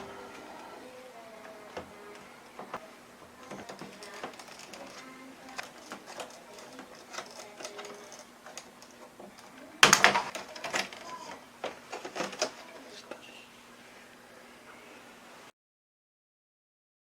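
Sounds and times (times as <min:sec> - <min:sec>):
parts and tools clicking: 0:03.4 - 0:12.6.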